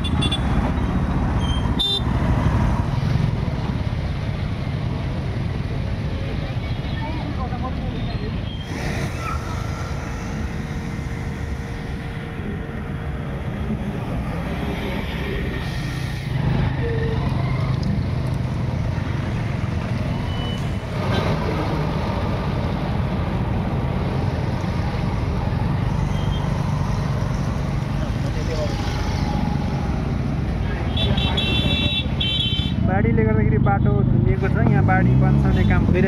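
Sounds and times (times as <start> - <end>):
heavy vehicle engine running: 8.5 - 30.8.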